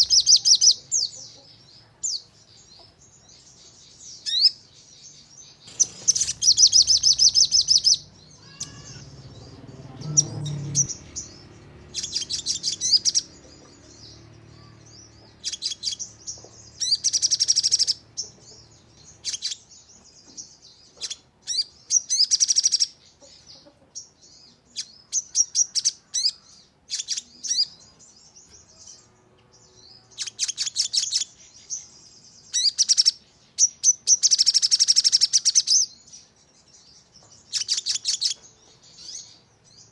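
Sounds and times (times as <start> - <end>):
short bird chirps: 5.6 - 13.3
bird trilling rapidly: 5.6 - 13.4, 15.4 - 16.1, 16.8 - 18.0.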